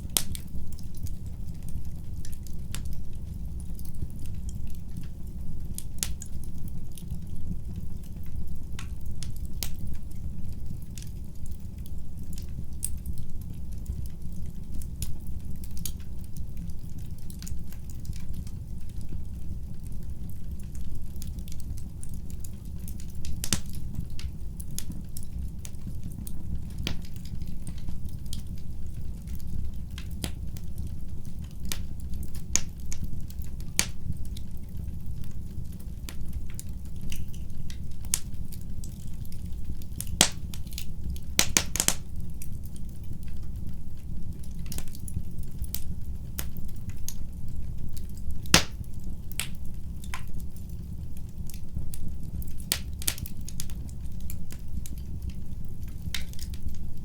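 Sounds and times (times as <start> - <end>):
fire rumbling: 0.0 - 57.0
wood fire crackling and popping: 0.0 - 57.0.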